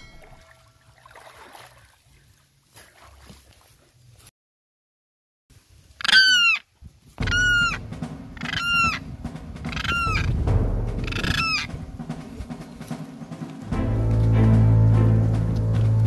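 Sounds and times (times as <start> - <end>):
large bird calling: 6.0 - 6.6, 7.2 - 13.6
background music with bass: 7.2 - 16.0.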